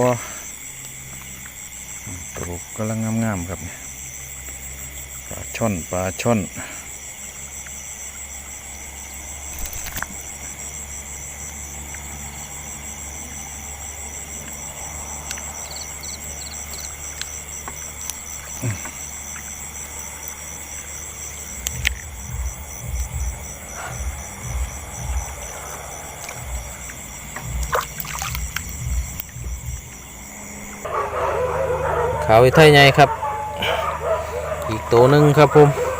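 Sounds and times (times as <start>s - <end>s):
crickets trilling: 0.0s - 35.9s
low thumps: 21.4s - 30.8s.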